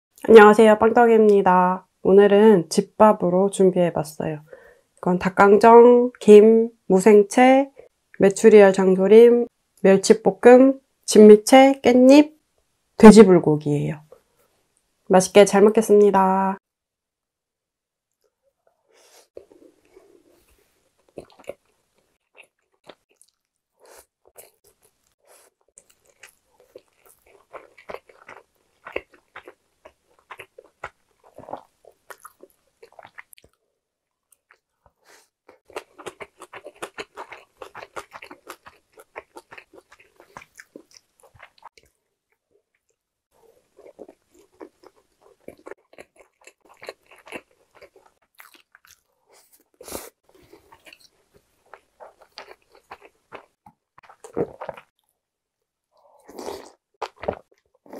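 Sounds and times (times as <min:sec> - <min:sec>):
person chewing food: 0:19.4 - 0:33.6, 0:34.2 - 0:55.2, 0:55.9 - 0:57.9.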